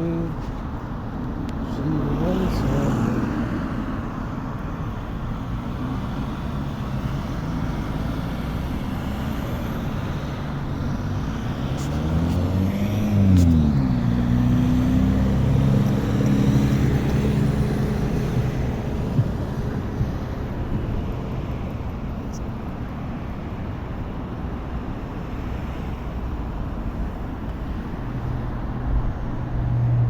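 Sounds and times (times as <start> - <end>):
wind and road noise: 0.0 - 30.0
motor vehicle passing: 5.6 - 21.7, 29.4 - 30.0.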